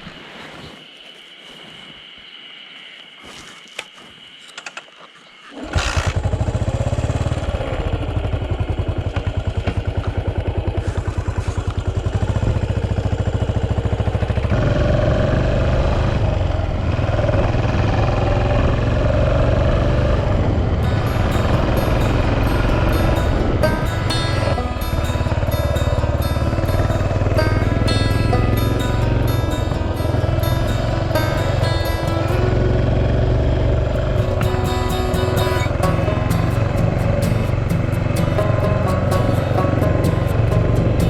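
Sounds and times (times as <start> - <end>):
motorcycle engine running: 5.6 - 41.0.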